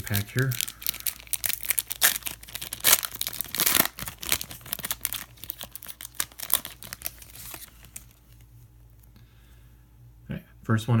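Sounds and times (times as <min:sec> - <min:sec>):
foil pack tearing and crinkling: 0:00.0 - 0:08.2.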